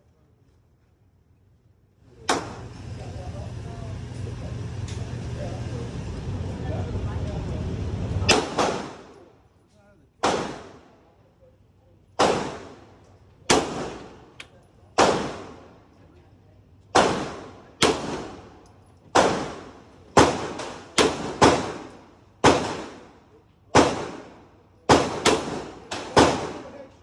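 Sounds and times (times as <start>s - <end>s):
pistol shots echoing: 8.3s - 9.2s, 10.2s - 10.8s, 12.2s - 12.9s, 13.5s - 14.2s, 15.0s - 15.7s, 17.0s - 18.5s, 19.1s - 23.1s, 23.7s - 26.8s.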